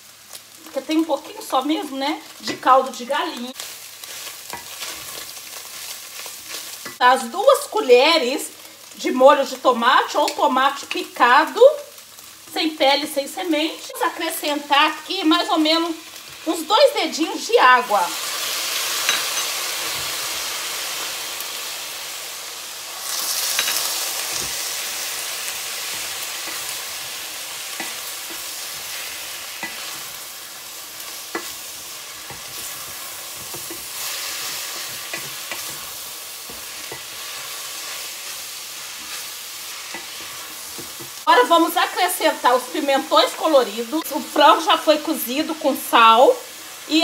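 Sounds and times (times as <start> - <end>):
food sizzling in a pan: 0.0 - 47.0.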